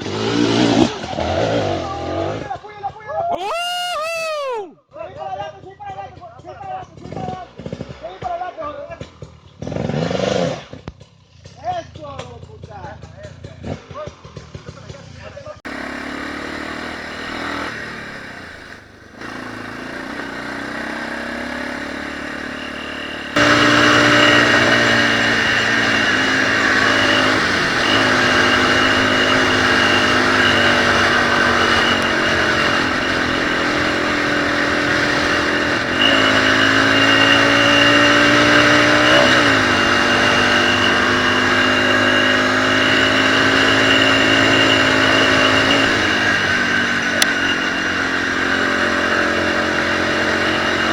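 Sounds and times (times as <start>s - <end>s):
motorcycle engine revving: 0.0s - 2.6s, 9.0s - 10.8s, 15.7s - 50.9s.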